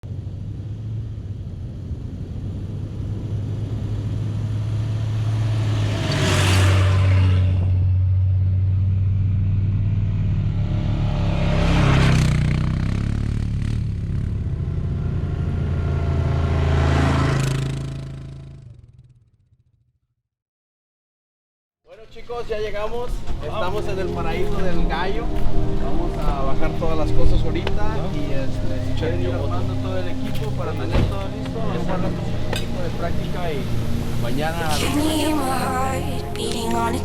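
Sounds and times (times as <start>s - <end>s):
vehicle engine humming: 0.0s - 19.0s, 22.5s - 37.0s
whooshes passing: 3.0s - 8.6s.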